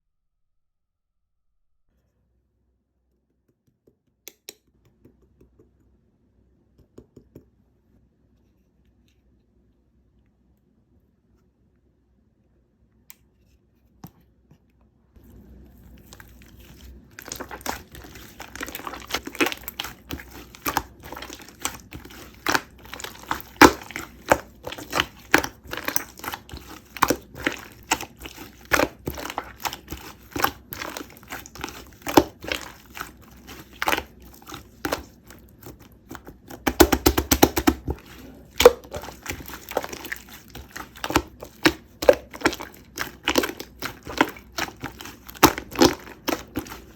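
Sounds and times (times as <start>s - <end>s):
close crinkling and crackling: 15.7s - 46.9s.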